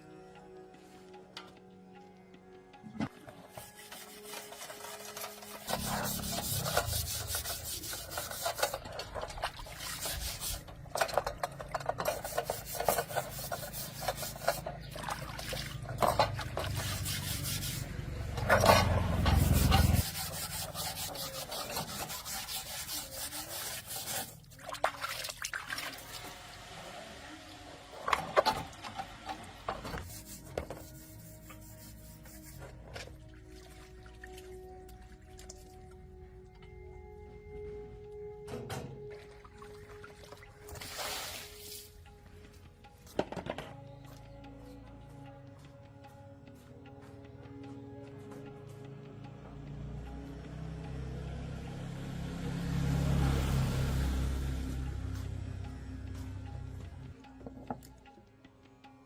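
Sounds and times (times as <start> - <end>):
rough rubbing and scraping: 3.4 - 15.1, 15.8 - 24.6, 29.9 - 33.0.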